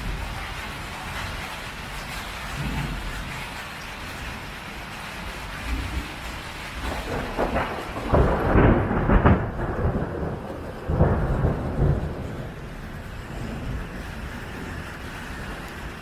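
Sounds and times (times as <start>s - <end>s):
heavy rain on a tin roof: 0.0s - 16.0s
thunder rumbling: 5.3s - 16.0s.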